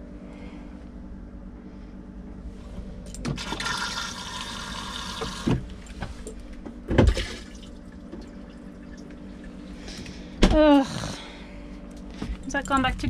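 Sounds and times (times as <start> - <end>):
toilet flushing water: 3.3 - 5.8, 7.0 - 10.0.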